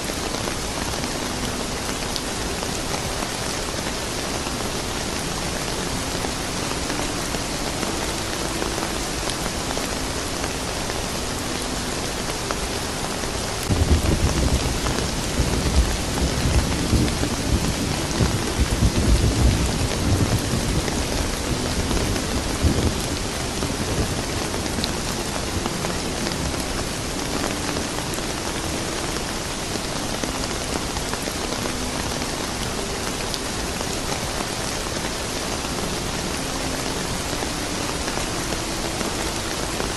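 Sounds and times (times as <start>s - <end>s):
steady rain falling: 0.0s - 39.9s
low rumble of thunder: 13.7s - 24.8s.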